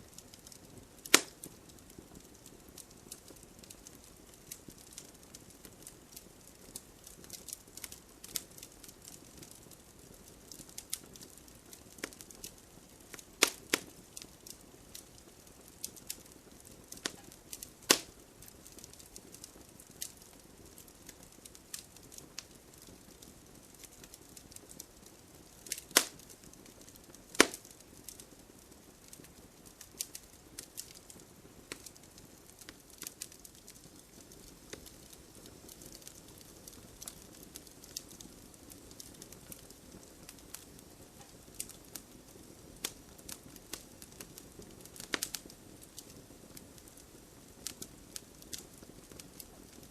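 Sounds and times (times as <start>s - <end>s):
campfire crackling: 0.0s - 49.9s
burning wood popping: 0.1s - 49.9s.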